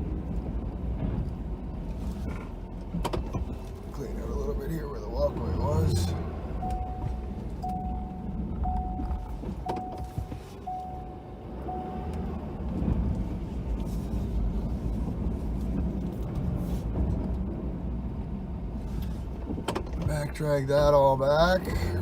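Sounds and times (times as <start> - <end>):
truck engine rumble: 0.0 - 22.0
steady beep: 6.6 - 12.4.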